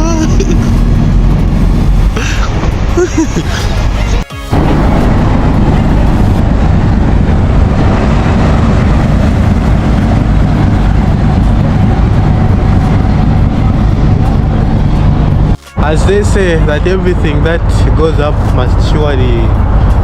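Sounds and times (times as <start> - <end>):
ferry engine running: 0.0 - 20.0
loud rushing noise: 0.0 - 20.0.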